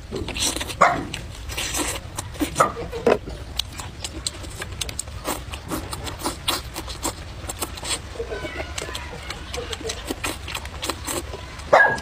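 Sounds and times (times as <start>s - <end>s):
chewing noodles and vegetables: 0.0s - 12.0s.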